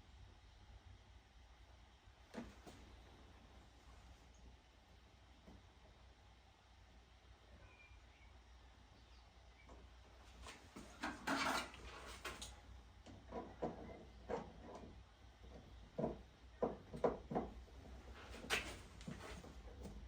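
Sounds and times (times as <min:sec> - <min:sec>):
scraping rustles: 0:10.3 - 0:12.6, 0:17.9 - 0:20.0.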